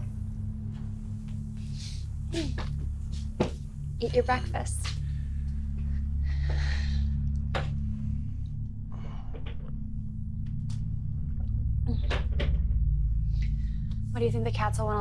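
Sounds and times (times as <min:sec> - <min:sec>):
low steady drone: 0:00.0 - 0:15.0.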